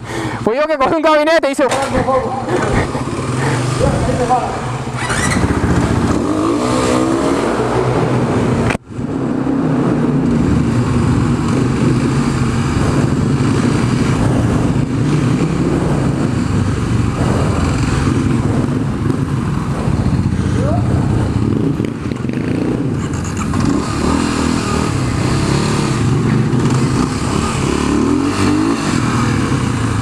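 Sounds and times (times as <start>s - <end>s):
dirt bike engine running: 1.8s - 30.0s.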